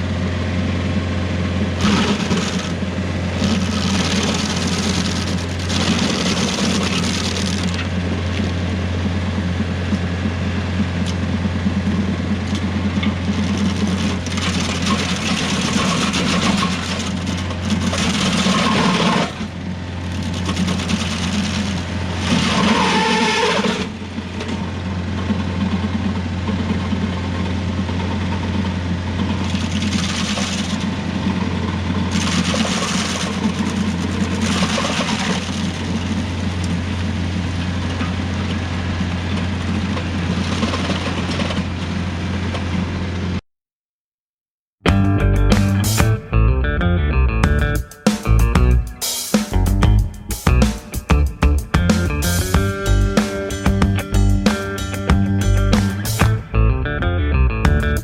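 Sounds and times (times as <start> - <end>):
tractor engine running: 0.0 - 43.4, 44.8 - 58.0
harsh stump grinding noise: 1.6 - 8.8, 11.0 - 42.6, 49.5 - 56.7.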